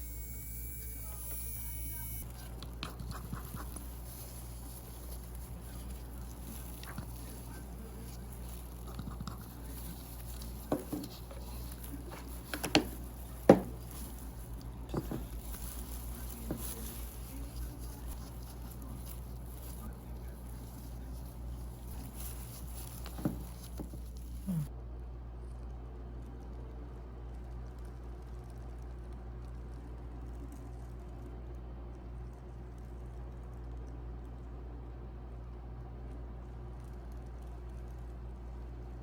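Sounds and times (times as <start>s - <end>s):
steady low hum: 0.0s - 39.0s
manicure tools and bottles tapping: 1.2s - 19.8s, 21.4s - 24.4s.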